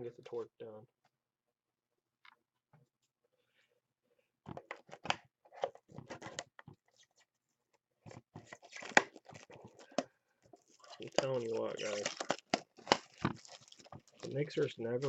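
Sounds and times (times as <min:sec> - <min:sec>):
wrapper tearing and crinkling: 0:10.7 - 0:14.6.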